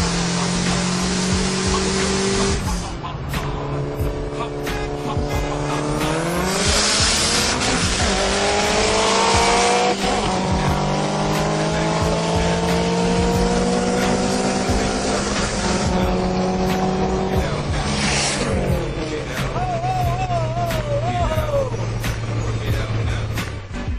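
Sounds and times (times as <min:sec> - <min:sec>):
car engine accelerating: 0:00.0 - 0:23.9
hiss at gear change: 0:06.0 - 0:08.7, 0:16.6 - 0:19.6.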